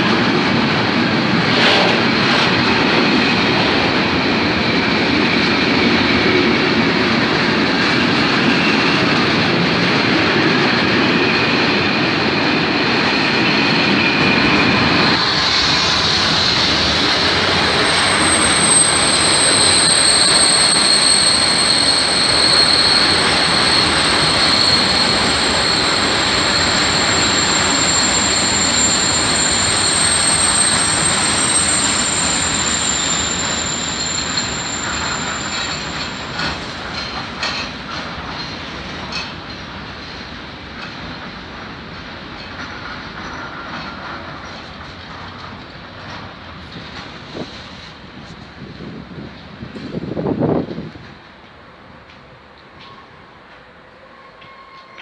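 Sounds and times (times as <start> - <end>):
train wheel squeal: 1.2 - 51.0, 52.1 - 55.0
wheels clacking over rail joints: 15.0 - 47.4.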